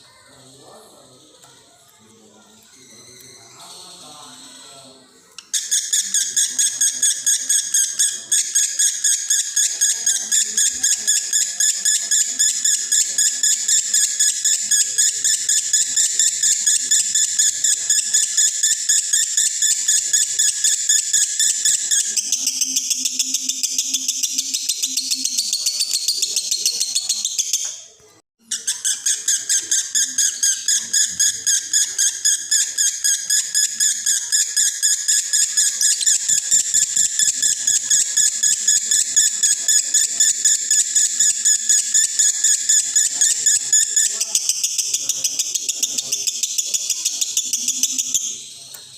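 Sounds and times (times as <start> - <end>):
lovebird chattering song: 5.4 - 27.8, 28.5 - 48.9
lovebird chattering shrill chirps: 28.5 - 48.7.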